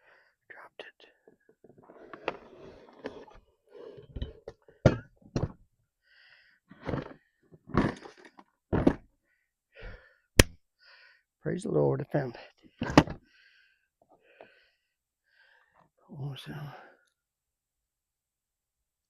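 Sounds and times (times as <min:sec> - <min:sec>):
tools knocking and clunking: 0:04.1 - 0:05.6.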